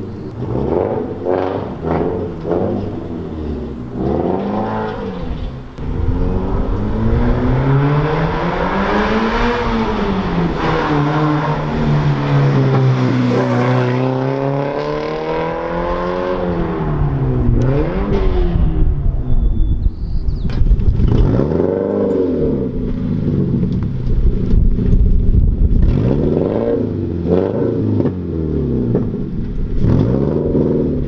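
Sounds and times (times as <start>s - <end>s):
car engine with loud farty exhaust: 0.0s - 31.0s.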